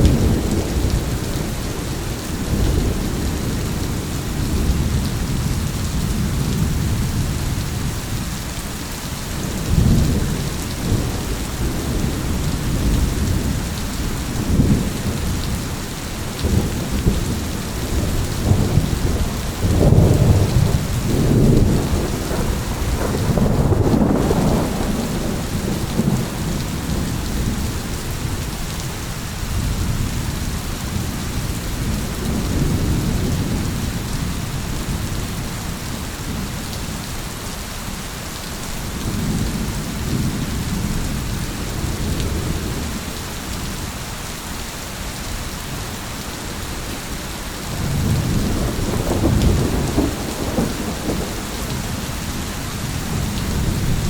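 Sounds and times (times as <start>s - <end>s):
rolling thunder: 0.0s - 7.8s, 9.4s - 28.6s, 47.6s - 54.0s
heavy rain: 0.0s - 54.0s.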